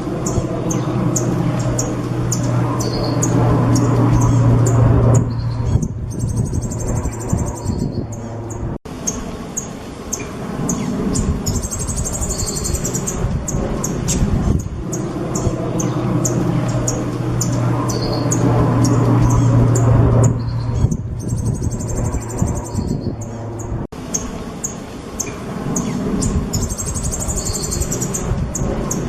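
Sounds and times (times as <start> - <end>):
rapid high bird trill: 0.0 - 29.0
steady low hum: 0.0 - 29.0.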